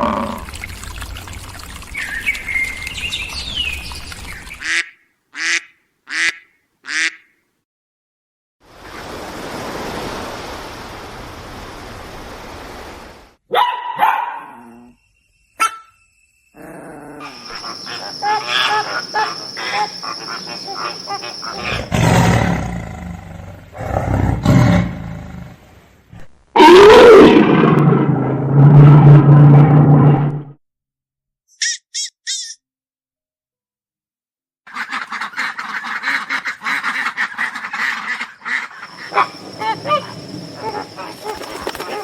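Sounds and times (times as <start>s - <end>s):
loud low-pitched animal calls: 16.6s - 24.9s, 38.8s - 42.0s
hiss-like animal sound: 17.2s - 23.1s.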